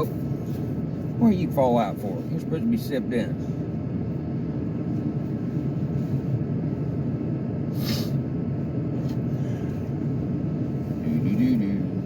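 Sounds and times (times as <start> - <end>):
car engine idling low rumble: 0.0 - 12.0.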